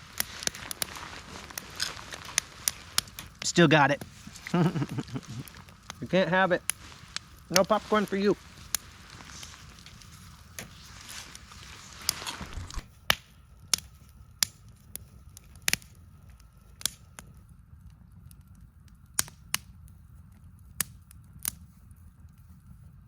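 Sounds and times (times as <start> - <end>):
low background rumble: 0.0 - 20.8
sharp fire pops: 0.0 - 21.7
campfire crackling: 0.0 - 23.0.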